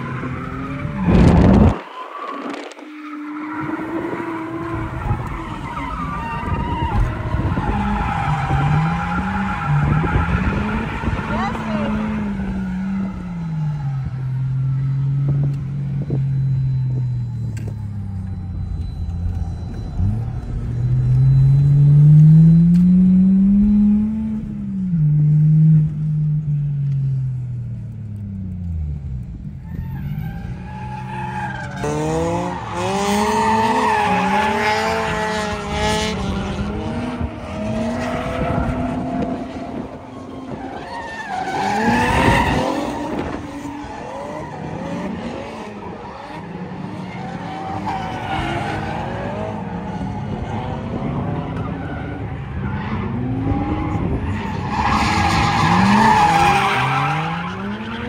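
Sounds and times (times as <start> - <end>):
drift cars revving past: 0.0 - 15.4, 29.8 - 58.0
car engine revving: 6.4 - 29.6, 30.8 - 58.0.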